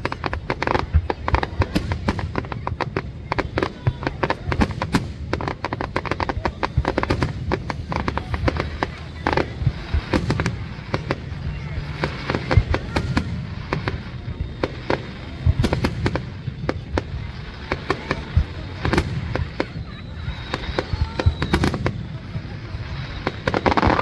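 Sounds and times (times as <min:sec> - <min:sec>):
fireworks crackling and banging: 0:00.0 - 0:24.0.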